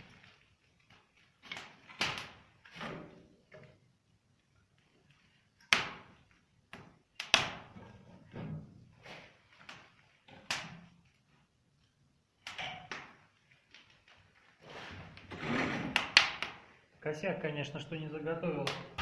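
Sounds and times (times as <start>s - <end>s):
logs crackling in fireplace: 0.0s - 17.0s
sharp pops of burning wood: 1.0s - 2.7s, 5.6s - 7.7s, 9.6s - 10.9s, 15.9s - 16.6s.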